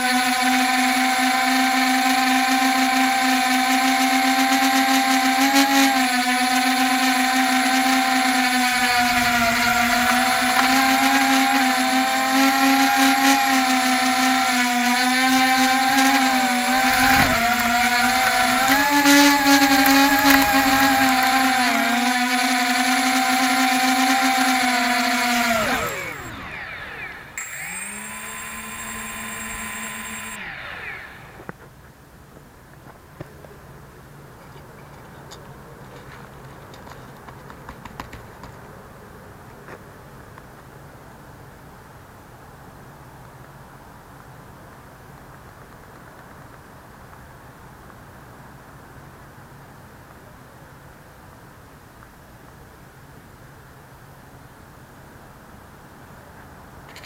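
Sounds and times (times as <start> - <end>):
drone propellers whining: 7.8 - 12.5, 13.2 - 31.5.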